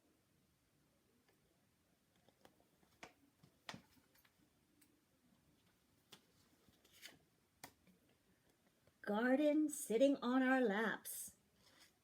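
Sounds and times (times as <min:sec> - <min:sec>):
book pages rustling: 0:05.6 - 0:08.6, 0:11.6 - 0:12.0.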